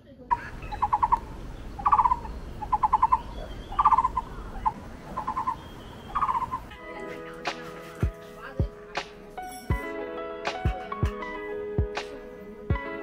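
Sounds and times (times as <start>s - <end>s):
bird calling rapid notes: 0.3s - 7.8s.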